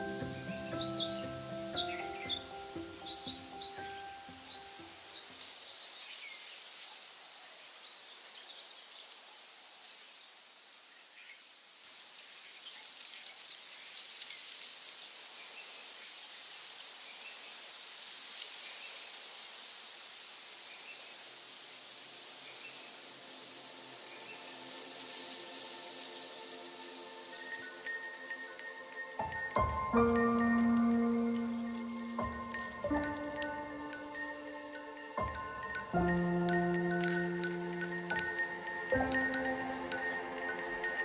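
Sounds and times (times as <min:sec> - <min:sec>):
small bird chirps: 0:00.0 - 0:07.0
high-pitched insect trill: 0:00.0 - 0:09.6, 0:24.0 - 0:41.0
even high hiss: 0:00.0 - 0:41.0.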